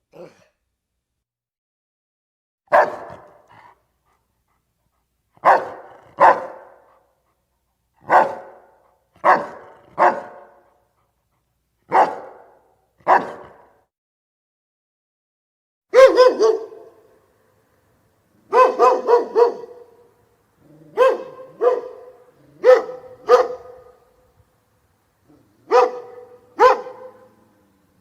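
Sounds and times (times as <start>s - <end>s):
dog barking: 2.7s - 3.7s, 5.4s - 7.1s, 8.0s - 10.8s, 11.9s - 13.8s, 15.9s - 17.1s, 18.4s - 20.1s, 20.7s - 24.2s, 25.3s - 27.6s.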